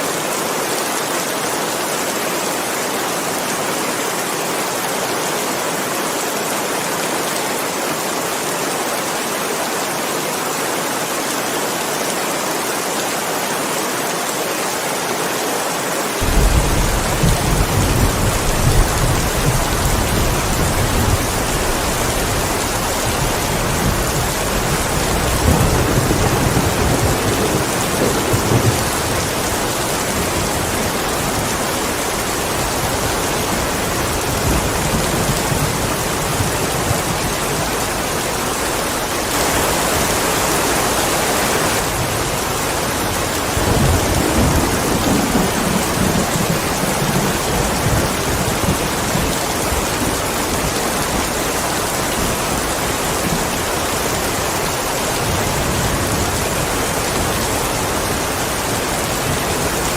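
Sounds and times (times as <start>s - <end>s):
heavy rain: 0.0s - 59.9s
thunder rumbling: 16.2s - 31.5s.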